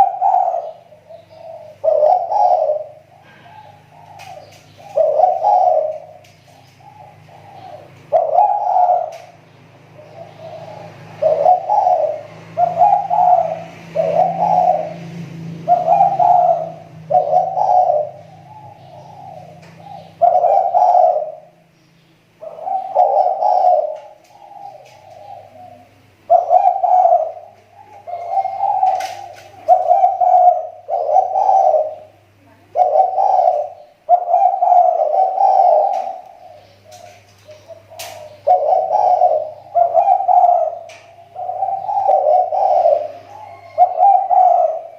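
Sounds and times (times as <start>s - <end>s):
dove cooing: 0.0s - 21.7s, 22.3s - 44.9s.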